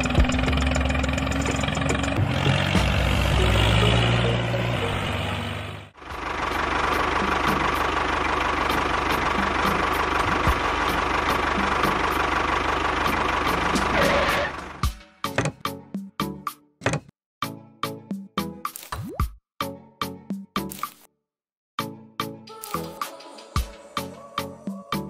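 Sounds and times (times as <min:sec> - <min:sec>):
small engine running: 0:00.0 - 0:14.8.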